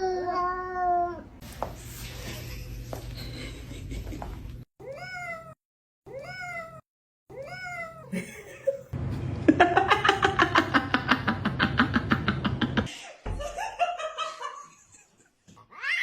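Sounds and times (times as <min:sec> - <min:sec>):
cat meowing: 0:04.8 - 0:08.1.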